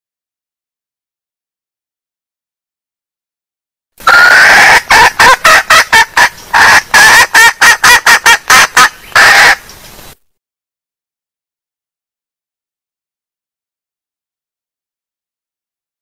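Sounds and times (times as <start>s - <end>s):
junglefowl clucking call: 4.0s - 9.7s.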